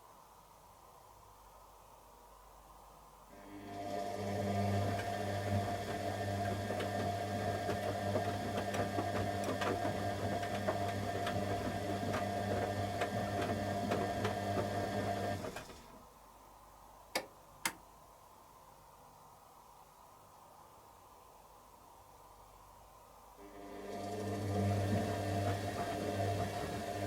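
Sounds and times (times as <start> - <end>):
washing machine motor hum: 3.3 - 16.0, 23.4 - 27.0.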